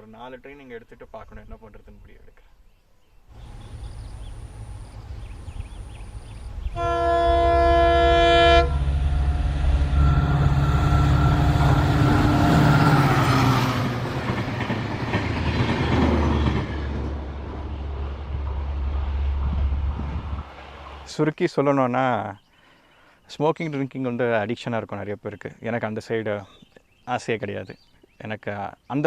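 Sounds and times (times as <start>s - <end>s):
train horn blast: 3.4s - 14.1s
train rumbling and clattering past: 3.4s - 21.2s.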